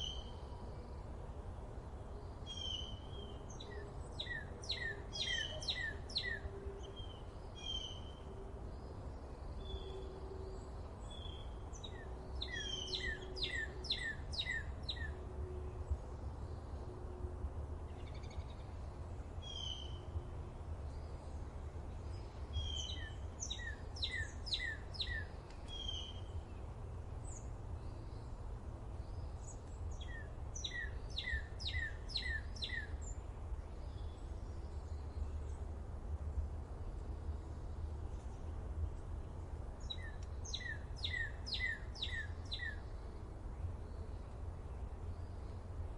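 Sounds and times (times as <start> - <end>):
bird chirps: 11.1 - 15.2, 22.6 - 26.3, 29.1 - 33.2, 39.8 - 42.9.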